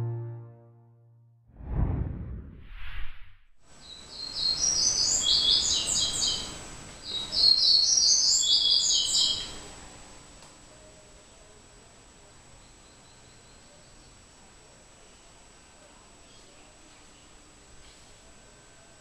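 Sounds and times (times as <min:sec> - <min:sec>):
steady background hiss: 0:03.7 - 0:19.0
small birds chirping: 0:03.8 - 0:09.6.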